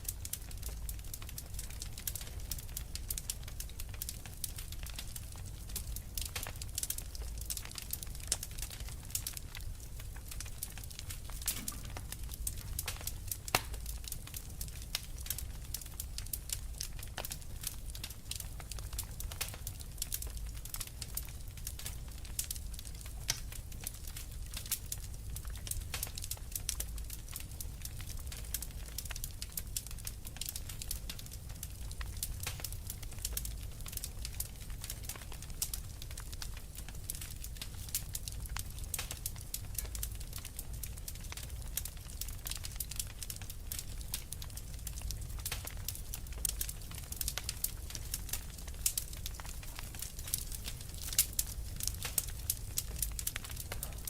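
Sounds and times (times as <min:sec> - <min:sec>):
fire crackling and popping: 0:00.0 - 0:54.0
low rumble of flames: 0:00.0 - 0:54.0.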